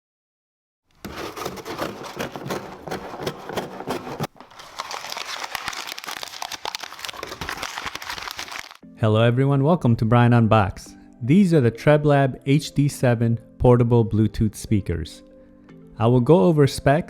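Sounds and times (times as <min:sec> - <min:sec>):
packaging crinkling and rustling: 0:01.0 - 0:08.8.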